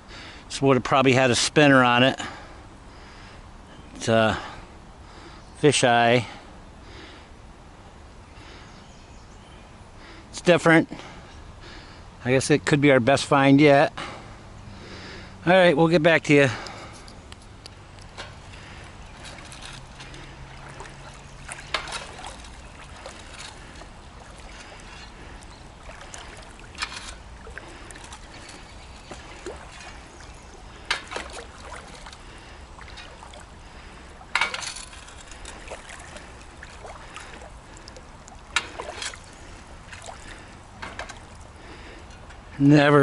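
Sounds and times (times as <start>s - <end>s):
flowing river water: 0.0s - 43.0s
splashes in shallow water: 18.4s - 41.6s.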